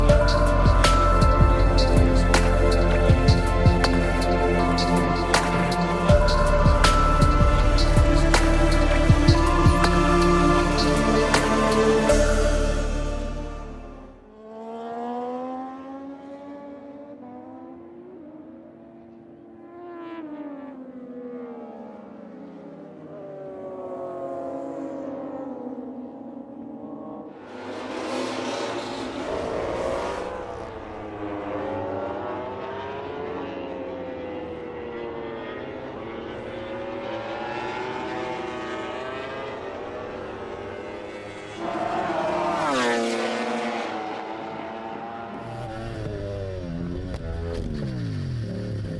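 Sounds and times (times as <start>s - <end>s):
music: 0.0s - 14.3s
racing motorcycles passing: 0.0s - 48.9s
racing motorcycle engine accelerating: 26.9s - 48.9s.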